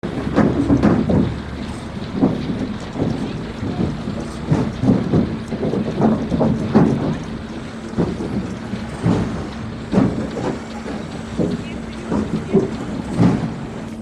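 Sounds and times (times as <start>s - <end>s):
heavy knocks and clunks: 0.0s - 14.0s
machinery humming: 0.0s - 14.0s.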